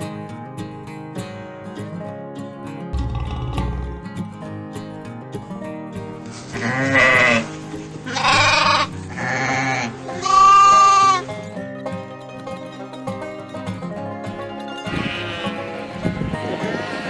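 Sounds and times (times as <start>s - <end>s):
background music: 0.0s - 17.0s
sheep or goat bleating: 6.5s - 11.2s, 14.8s - 17.0s.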